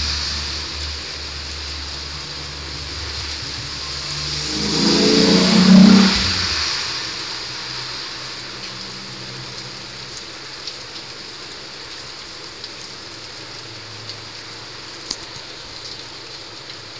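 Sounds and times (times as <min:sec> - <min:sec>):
heavy rain on roofs: 0:00.0 - 0:04.9, 0:06.1 - 0:16.9
water drip ticks: 0:08.6 - 0:16.9.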